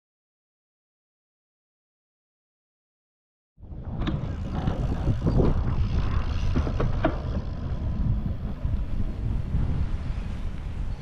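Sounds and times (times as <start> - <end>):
wind buffeting microphone: 3.6 - 11.0.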